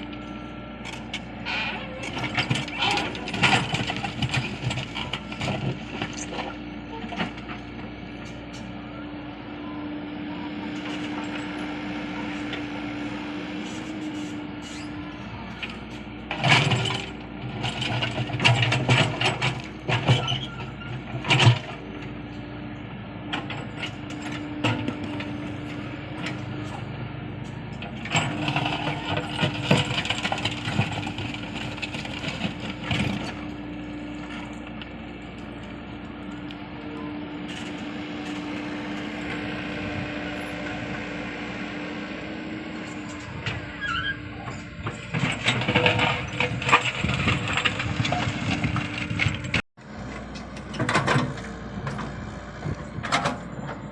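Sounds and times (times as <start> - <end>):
excavator diesel engine running: 0.0 - 53.9
metallic clanks and knocks: 44.4 - 49.6.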